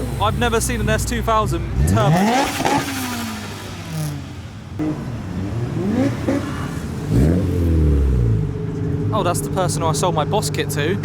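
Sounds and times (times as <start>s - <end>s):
car engine revving past: 1.7s - 8.6s.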